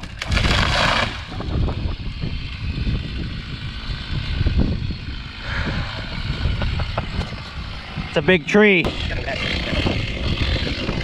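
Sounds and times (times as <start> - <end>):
crash of breaking branches: 0.0 - 1.4
low rumble: 0.0 - 11.0.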